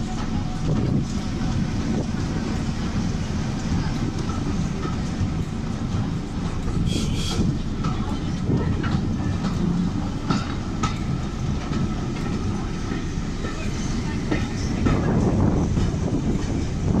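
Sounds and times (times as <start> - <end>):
wheels rumbling on track: 0.0 - 17.0
high wheel squeal: 6.8 - 7.6.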